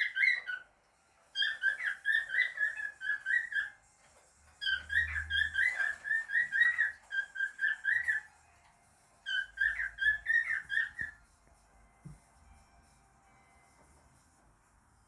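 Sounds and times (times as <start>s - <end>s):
cockatiel whistling: 0.0s - 0.7s, 1.3s - 3.8s, 4.6s - 8.3s, 9.2s - 11.2s.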